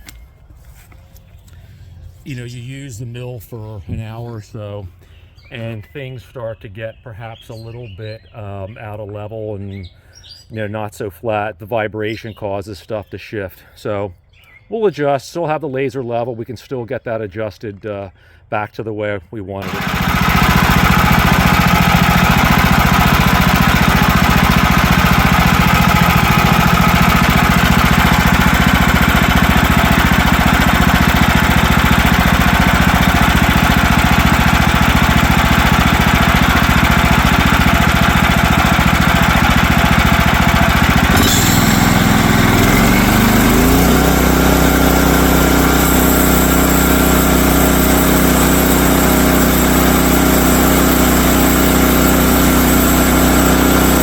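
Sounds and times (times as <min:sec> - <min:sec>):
small gasoline engine running: 0:19.6 - 0:54.0.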